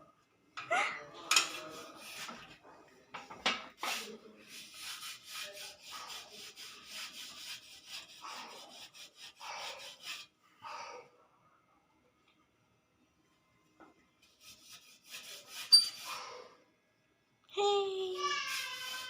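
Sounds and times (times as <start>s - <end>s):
scratching and rubbing: 1.2s - 2.6s, 3.7s - 10.3s, 14.2s - 16.3s, 18.2s - 19.0s.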